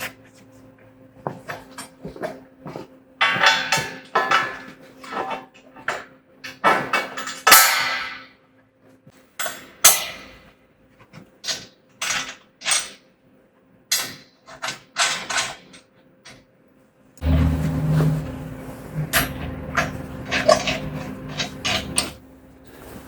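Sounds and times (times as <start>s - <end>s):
metallic clanks and rattles: 17.2s - 22.2s
loud steady low hum: 17.2s - 23.0s.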